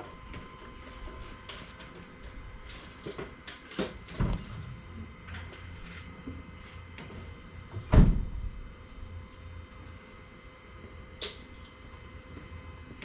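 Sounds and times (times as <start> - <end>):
heavy thump: 7.8 - 8.6.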